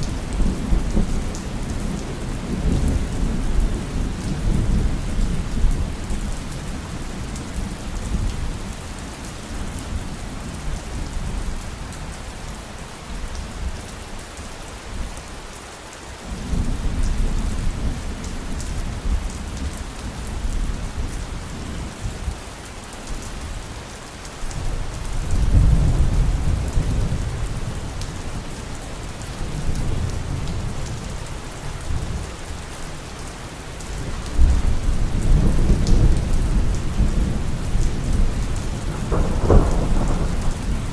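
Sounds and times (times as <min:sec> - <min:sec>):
heavy rain falling: 0:00.0 - 0:40.9
rolling thunder rumbles: 0:24.6 - 0:31.2, 0:34.0 - 0:40.9.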